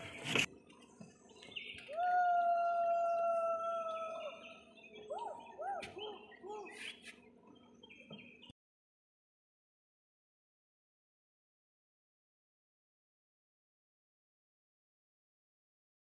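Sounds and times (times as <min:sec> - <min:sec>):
bird whistling call: 0:01.5 - 0:07.1.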